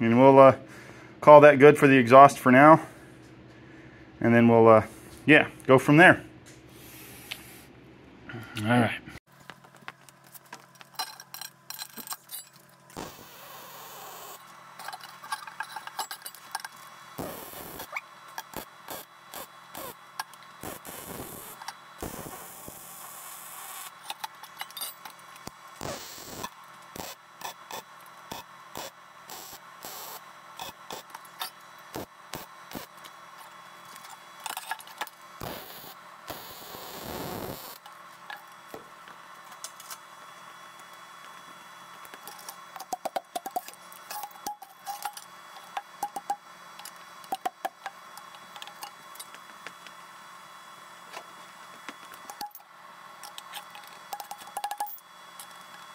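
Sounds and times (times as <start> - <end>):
welding crackling hiss: 12.9 - 55.9.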